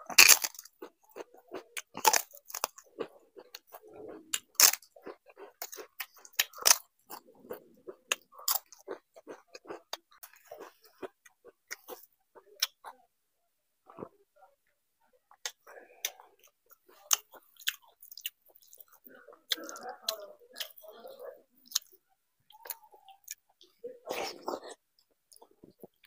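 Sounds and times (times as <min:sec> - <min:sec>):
person crunching crisp papad: 0:00.0 - 0:12.9, 0:24.1 - 0:26.0.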